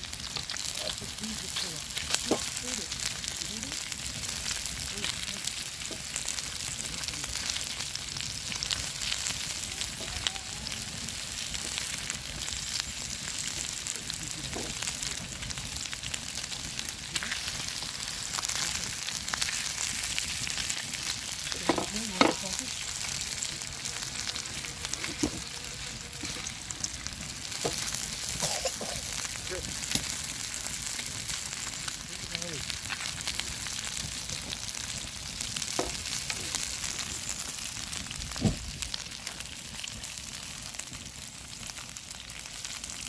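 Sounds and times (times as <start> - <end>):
campfire sizzling and crackling: 0.0 - 43.0
faint voice-like sound: 9.6 - 10.8.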